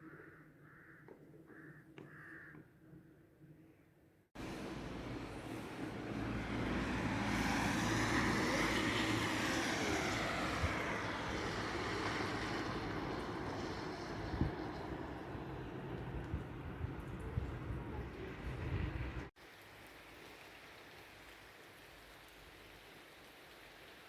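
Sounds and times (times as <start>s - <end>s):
vehicle passing: 4.4s - 19.3s
wind rumbling on microphone: 4.4s - 19.3s.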